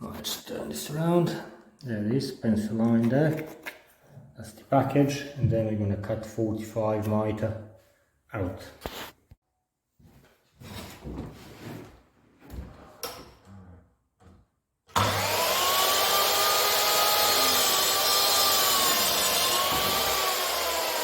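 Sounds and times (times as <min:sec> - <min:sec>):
mitre saw whining: 0:14.9 - 0:21.0.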